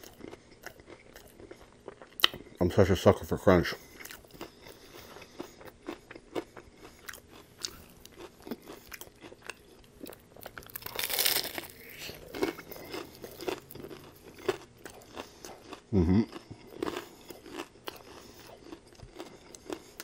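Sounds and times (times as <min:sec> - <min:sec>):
person chewing crispy food: 0:00.0 - 0:20.0.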